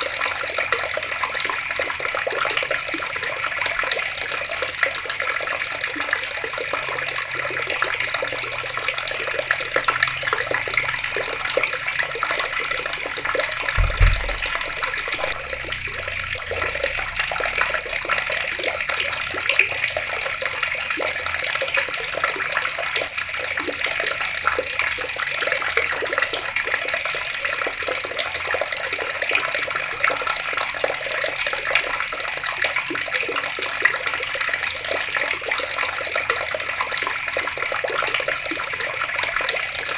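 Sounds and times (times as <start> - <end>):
water running from tap: 0.0 - 39.9
low thump: 13.8 - 17.8.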